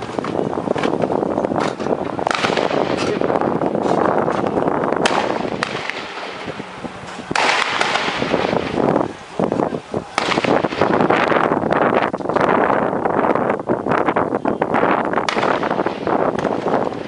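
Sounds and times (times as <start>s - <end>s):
steady rushing noise: 0.0s - 17.0s
gunshots: 1.6s - 8.8s, 10.2s - 11.4s, 15.2s - 17.0s.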